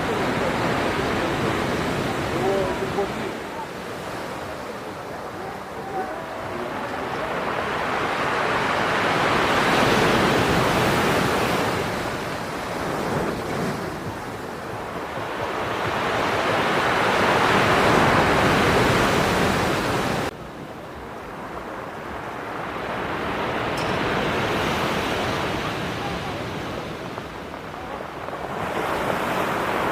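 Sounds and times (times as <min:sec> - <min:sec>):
heavy waves breaking on shore: 0:00.0 - 0:29.9.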